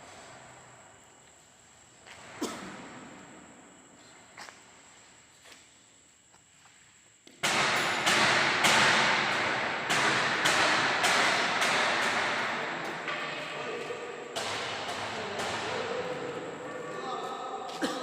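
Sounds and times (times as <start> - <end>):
repeated machine knocks: 7.4 - 16.2.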